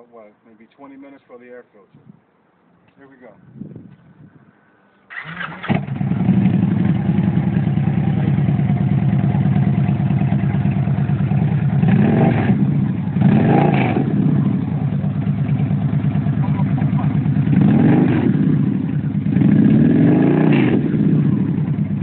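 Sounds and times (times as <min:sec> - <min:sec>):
engine starter cranking: 0:05.1 - 0:06.1
engine idling with deep exhaust: 0:05.9 - 0:22.0.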